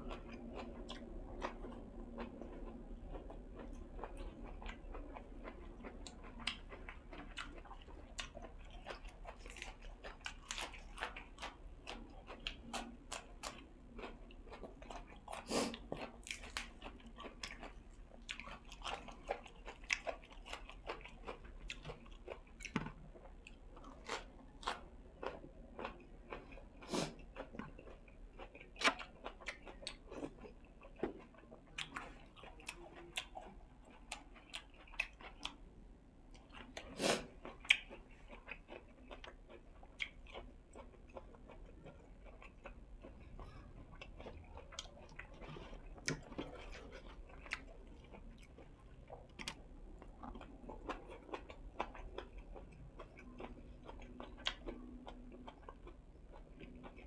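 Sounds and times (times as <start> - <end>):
chewing and crunching food: 0.0 - 57.0.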